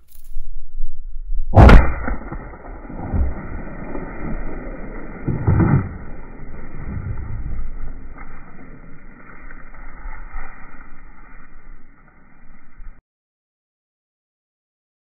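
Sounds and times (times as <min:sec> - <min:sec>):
muffled low rumbling: 0:00.0 - 0:13.0
shotgun blast: 0:01.6 - 0:06.2.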